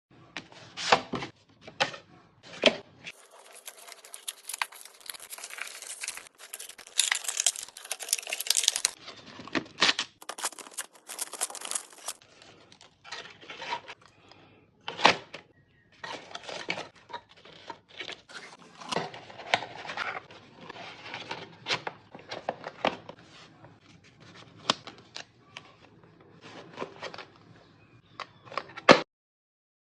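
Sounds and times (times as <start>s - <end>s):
packaging tearing and crinkling: 3.1s - 9.0s, 9.8s - 12.2s
small parts clicking and knocking: 3.2s - 9.0s, 10.2s - 12.2s.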